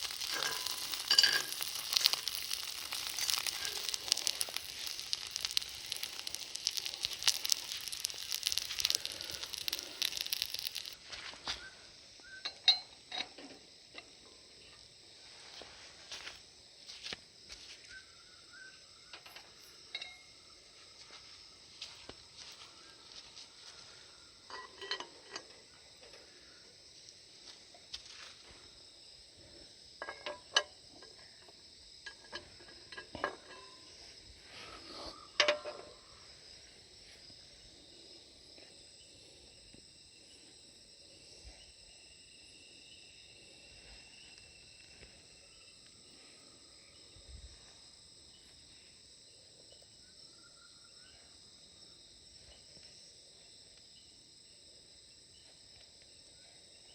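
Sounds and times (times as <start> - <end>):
utensils clinking on iron pan: 0.0 - 5.1
insects chirping: 0.0 - 56.9.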